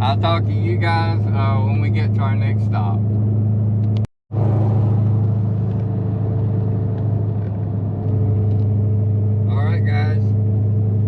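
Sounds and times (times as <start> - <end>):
car engine droning: 0.0 - 11.0.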